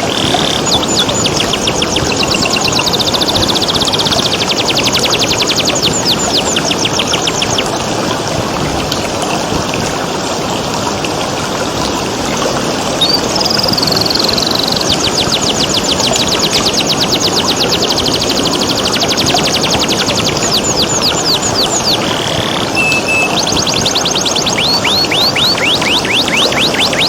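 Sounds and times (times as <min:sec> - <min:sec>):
canary singing: 0:00.0 - 0:07.9, 0:13.0 - 0:27.0
running water: 0:00.0 - 0:27.0.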